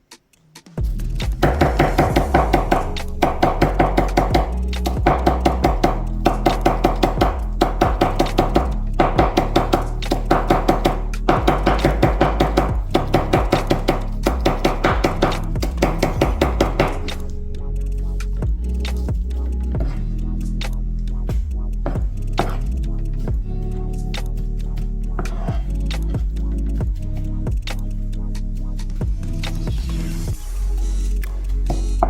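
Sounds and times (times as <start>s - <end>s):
background music: 0.0s - 32.0s.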